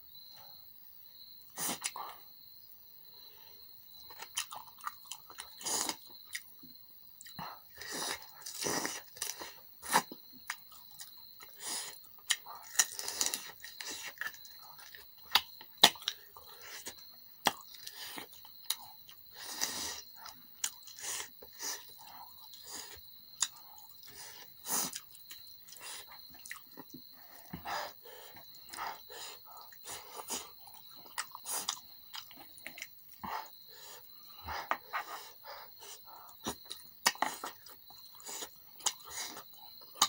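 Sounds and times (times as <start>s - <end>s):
close chewing and wet mouth sounds: 3.9s - 40.0s.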